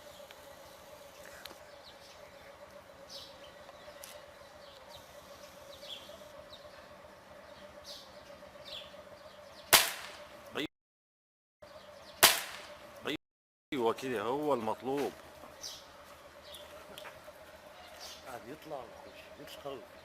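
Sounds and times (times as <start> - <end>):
faint bird chirps: 0.0 - 10.7
air rifle shot: 9.7 - 10.2, 12.2 - 12.7.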